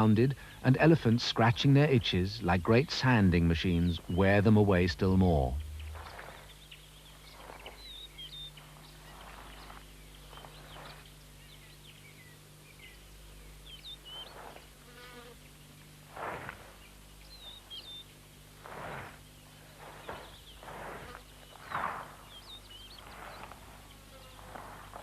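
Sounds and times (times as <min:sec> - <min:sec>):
steady low drone: 0:00.0 - 0:06.6
soft rustling scrapes: 0:05.7 - 0:06.6, 0:07.2 - 0:11.2, 0:14.1 - 0:15.4, 0:16.0 - 0:17.9, 0:18.5 - 0:25.0.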